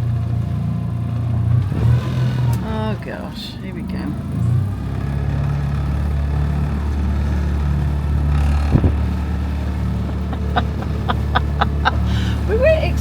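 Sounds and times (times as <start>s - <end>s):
wind: 0.0s - 13.0s
boat motor running: 3.7s - 13.0s.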